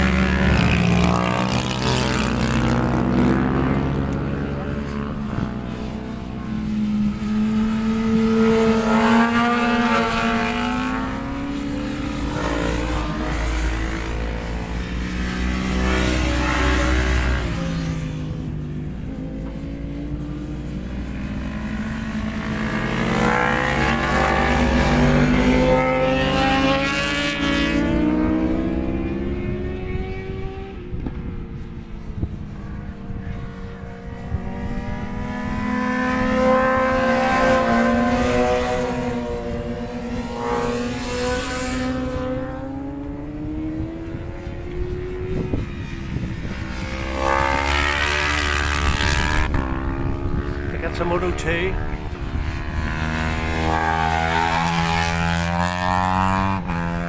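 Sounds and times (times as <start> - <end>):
racing motorcycle engines: 0.0 - 57.0
wind rumble on microphone: 0.0 - 57.0.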